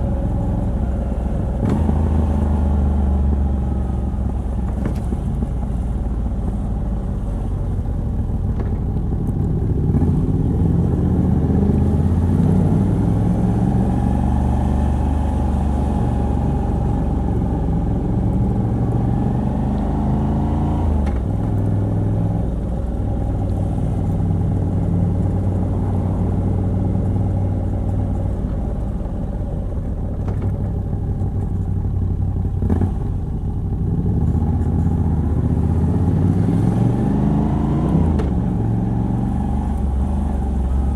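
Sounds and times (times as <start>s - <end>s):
motorcycle engine revving: 32.4s - 40.9s.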